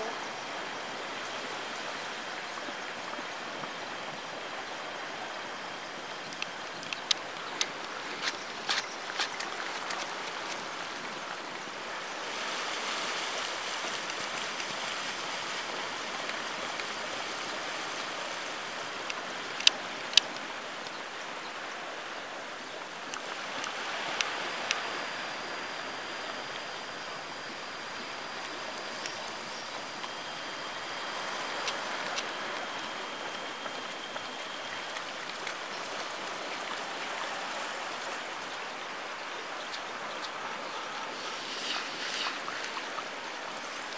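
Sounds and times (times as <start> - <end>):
faint high steady tones: 11.0 - 43.9.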